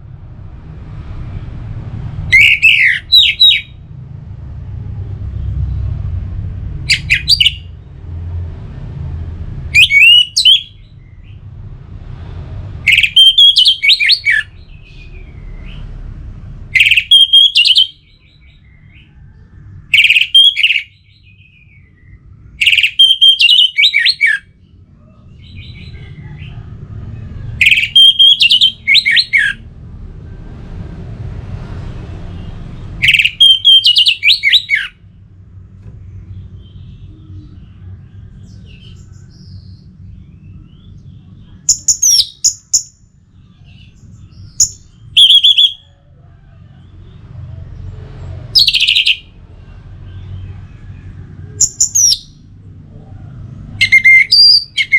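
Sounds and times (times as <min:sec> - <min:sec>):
low background rumble: 0:00.0 - 0:17.1
thrush singing whistled phrases: 0:02.3 - 0:03.8, 0:06.9 - 0:07.7, 0:09.8 - 0:10.9, 0:12.9 - 0:14.5, 0:16.7 - 0:18.2, 0:19.9 - 0:21.2, 0:22.6 - 0:24.6, 0:27.6 - 0:29.6, 0:33.0 - 0:35.0, 0:41.7 - 0:43.0, 0:44.5 - 0:45.9, 0:48.5 - 0:49.3, 0:51.6 - 0:52.4, 0:53.8 - 0:54.9.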